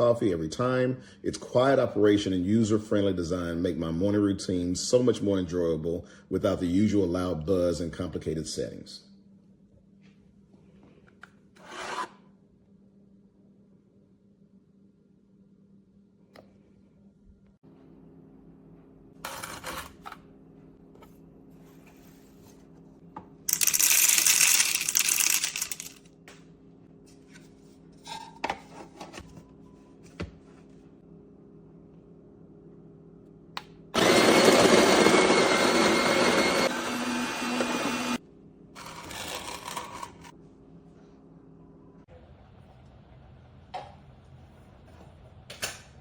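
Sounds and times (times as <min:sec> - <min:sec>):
coffee grinder motor whining: 0:34.0 - 0:38.2, 0:38.8 - 0:40.3.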